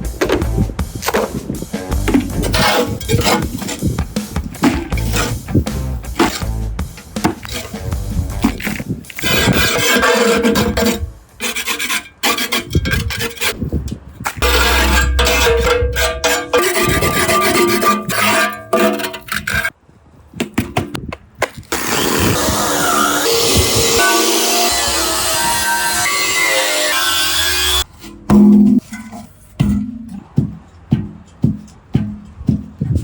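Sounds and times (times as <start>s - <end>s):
music: 0.0s - 11.4s
rubbing and scraping: 0.0s - 13.7s, 14.3s - 19.8s.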